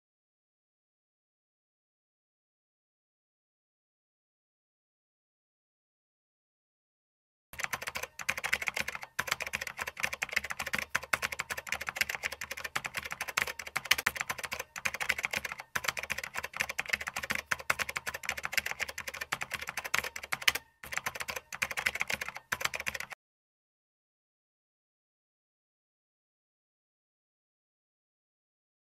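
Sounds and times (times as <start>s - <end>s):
computer keyboard typing: 7.6s - 23.2s.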